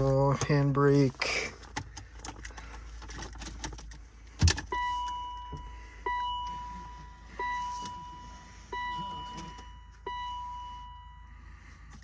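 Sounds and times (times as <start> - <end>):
car warning chime: 4.5 - 12.0.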